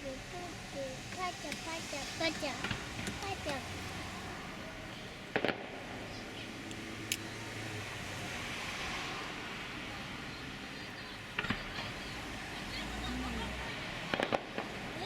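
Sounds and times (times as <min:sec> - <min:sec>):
outdoor background noise: 0:00.0 - 0:15.0
fireworks bangs: 0:05.0 - 0:06.3, 0:13.8 - 0:15.0.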